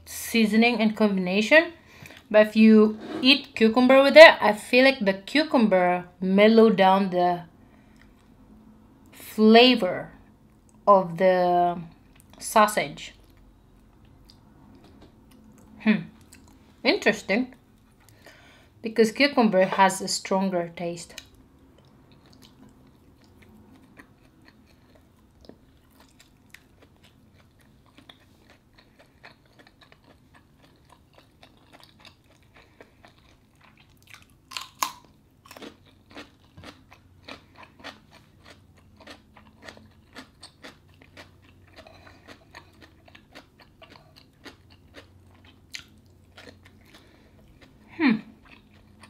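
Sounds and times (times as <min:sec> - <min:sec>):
chewing and wet mouth clicks: 0:13.2 - 0:16.6, 0:21.1 - 0:47.7
crisp cucumber crunch: 0:22.1 - 0:49.0.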